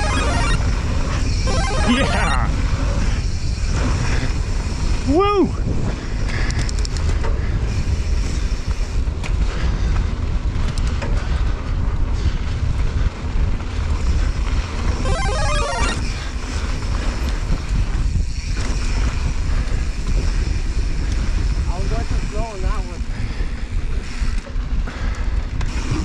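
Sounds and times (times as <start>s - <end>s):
brief pitched sound: 0.0s - 0.6s, 15.1s - 16.0s
bike tyres rolling on dirt: 0.6s - 1.4s, 2.5s - 15.0s, 16.0s - 26.0s
wind buffeting microphone: 2.5s - 15.0s, 16.0s - 26.0s.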